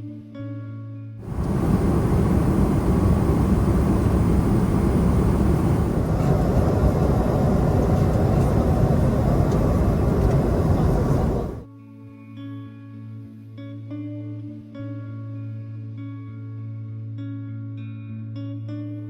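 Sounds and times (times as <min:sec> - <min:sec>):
jet airliner engine rush: 0:01.2 - 0:11.7.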